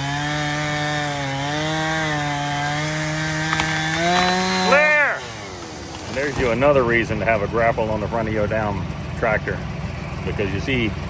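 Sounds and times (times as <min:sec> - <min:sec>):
chainsaw cutting wood: 0:00.0 - 0:07.0.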